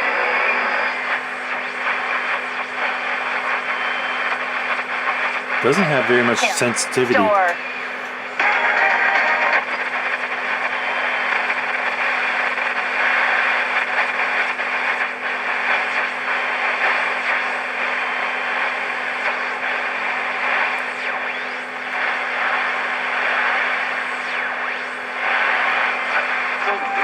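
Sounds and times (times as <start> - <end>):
radio static hiss: 5.6 - 7.4.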